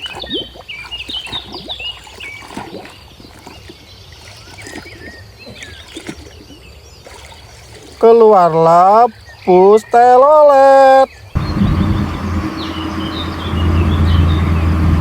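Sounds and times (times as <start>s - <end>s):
water sloshing and splashing: 0.0s - 9.4s
birds chirping: 0.0s - 15.0s.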